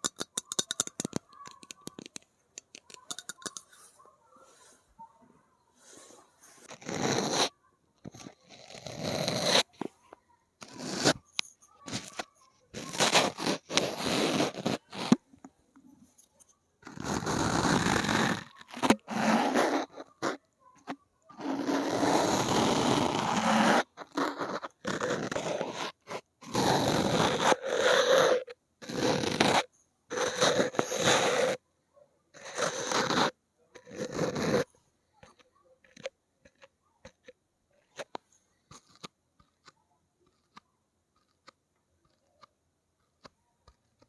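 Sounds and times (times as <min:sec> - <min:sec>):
fingernails scratching a surface: 0:00.0 - 0:03.9, 0:05.9 - 0:07.5, 0:08.1 - 0:10.0, 0:10.6 - 0:15.2, 0:16.8 - 0:31.6, 0:32.4 - 0:37.2.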